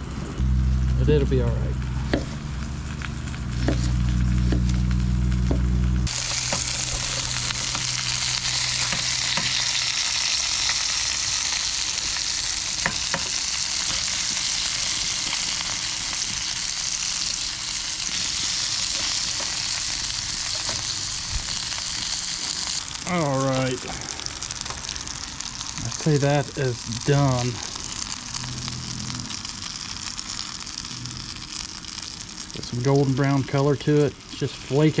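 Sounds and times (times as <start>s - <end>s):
fish frying in hot oil: 0.0s - 35.0s.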